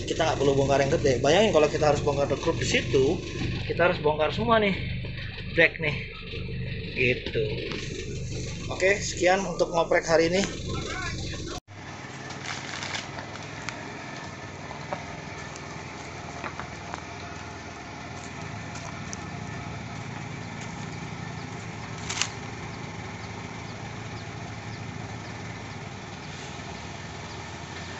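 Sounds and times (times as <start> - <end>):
car engine idling: 0.0 - 27.9
sharp click: 22.0 - 22.4.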